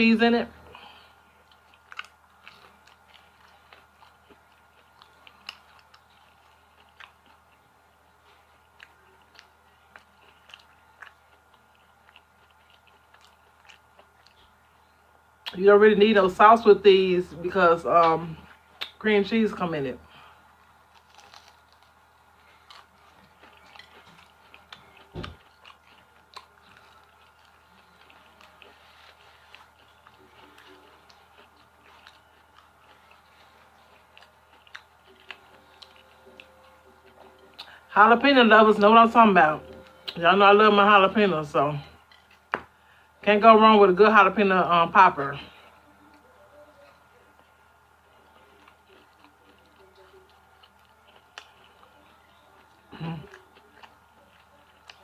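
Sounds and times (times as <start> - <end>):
person chewing: 0.7 - 15.6, 20.1 - 37.9, 41.9 - 43.0, 46.1 - 55.0.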